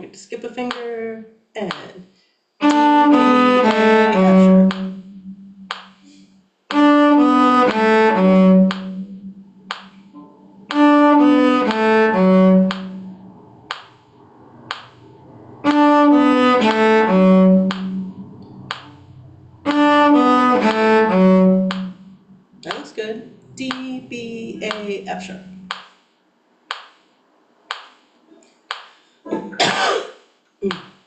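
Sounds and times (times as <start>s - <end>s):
bowed string instrument phrase: 2.6s - 25.7s.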